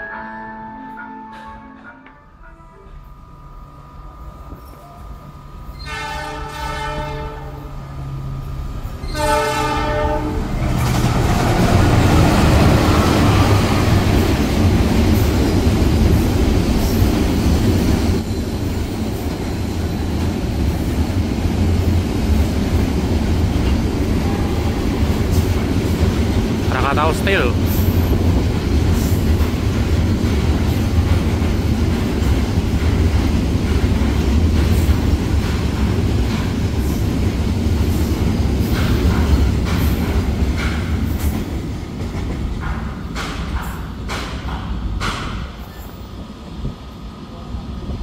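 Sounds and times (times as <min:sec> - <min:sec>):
freight train rumbling past: 0:02.3 - 0:48.0
locomotive horn blasts: 0:05.8 - 0:07.7, 0:09.0 - 0:10.6, 0:24.2 - 0:24.8.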